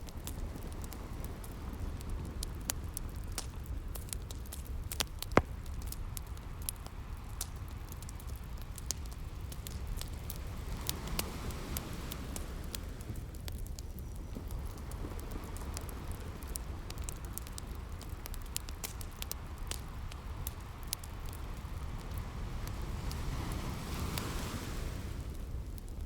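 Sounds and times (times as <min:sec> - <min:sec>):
wood fire crackling and popping: 0:00.0 - 0:26.0
sea waves rushing: 0:22.2 - 0:25.6.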